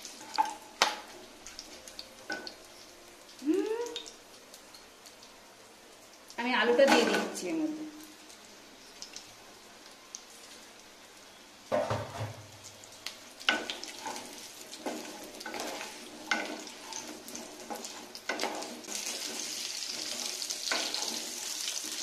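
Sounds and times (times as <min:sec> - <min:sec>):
potato frying in hot oil: 0:00.0 - 0:22.0
wooden spatula scraping pan: 0:13.9 - 0:21.5.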